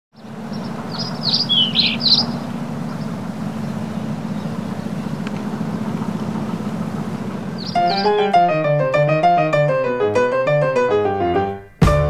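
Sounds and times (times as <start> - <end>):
small bird chirping: 0.1 - 8.8
steady low hum: 0.2 - 9.8.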